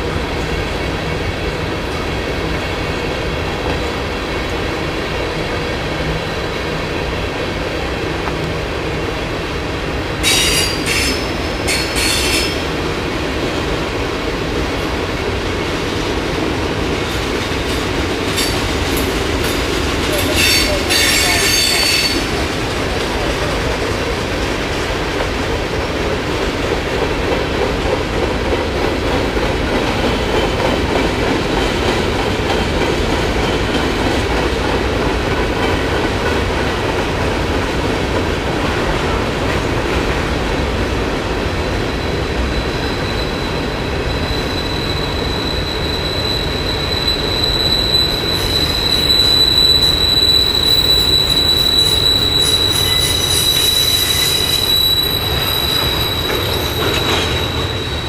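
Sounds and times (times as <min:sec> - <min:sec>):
freight cars rumbling on rails: 0:00.0 - 0:58.0
high wheel squeal: 0:10.2 - 0:12.6, 0:20.1 - 0:22.3, 0:41.9 - 0:58.0.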